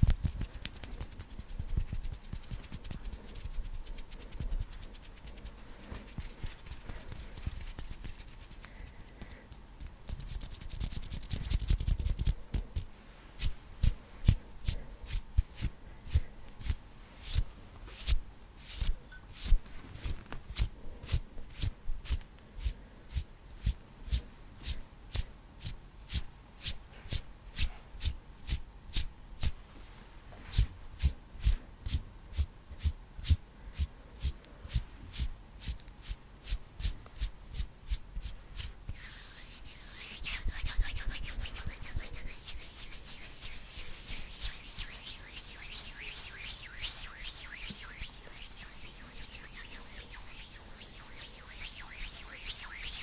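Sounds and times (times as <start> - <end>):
hands rubbing and fluttering: 0.0 - 9.3, 10.1 - 22.2, 37.9 - 53.0.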